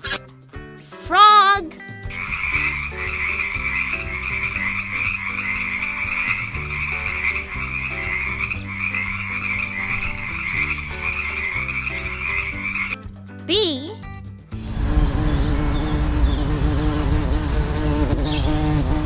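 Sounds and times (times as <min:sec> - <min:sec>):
soft background music: 0:00.0 - 0:19.0.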